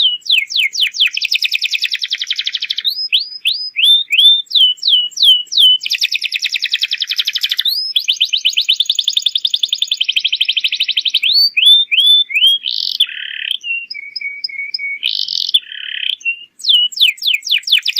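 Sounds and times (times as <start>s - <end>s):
canary singing trills and chirps: 0.0s - 17.9s.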